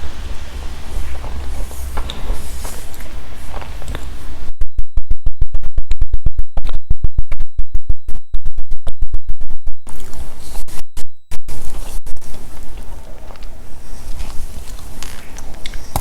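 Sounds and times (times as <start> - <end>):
microphone hiss: 0.0 - 4.8, 9.8 - 16.0
sharp electrical clicks: 0.0 - 13.6
thin high whine: 0.0 - 16.0.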